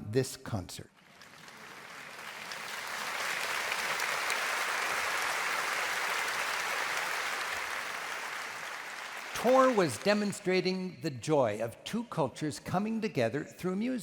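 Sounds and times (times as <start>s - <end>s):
audience applauding: 1.0s - 10.5s.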